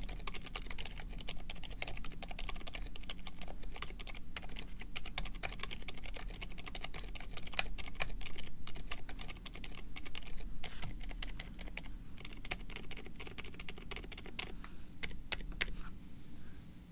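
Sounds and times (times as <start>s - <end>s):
mechanical keyboard typing: 0.0s - 15.7s.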